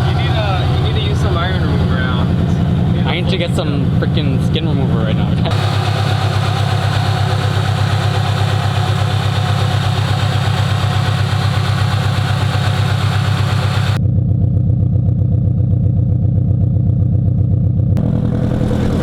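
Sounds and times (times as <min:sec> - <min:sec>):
car engine idling: 0:00.0 - 0:14.0, 0:18.0 - 0:19.0.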